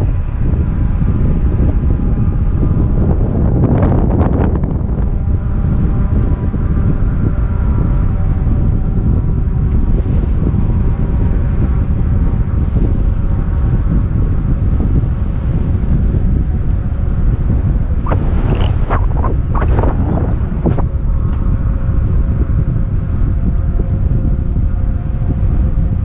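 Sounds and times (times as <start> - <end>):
faint steady drone: 0.0 - 26.0
wind buffeting microphone: 0.0 - 26.0
brief crackle: 18.1 - 21.4.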